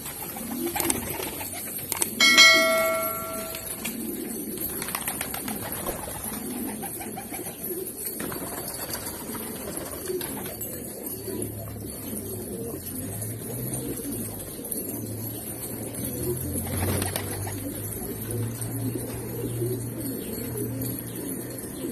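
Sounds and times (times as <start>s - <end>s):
pigeons cooing: 0.0s - 21.9s
bell-like metallic ring: 2.2s - 3.8s.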